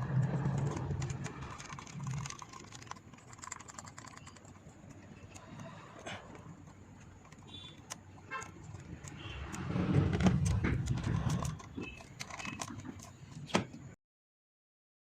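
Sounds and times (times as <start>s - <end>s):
tools clicking and knocking on engine: 0.3s - 13.9s
clattering and rustling: 8.2s - 13.9s.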